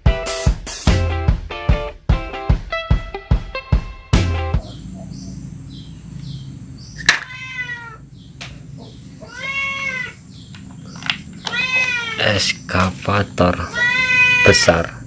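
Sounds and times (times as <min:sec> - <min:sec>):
low steady hum: 0:04.6 - 0:13.7
cat meowing: 0:07.1 - 0:08.0, 0:09.2 - 0:10.2, 0:11.4 - 0:12.3, 0:13.6 - 0:14.8.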